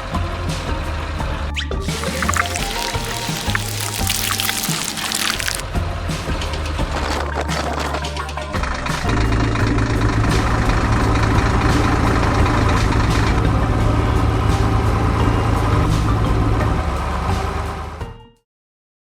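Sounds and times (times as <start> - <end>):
vehicle engine rumbling: 9.1 - 18.0.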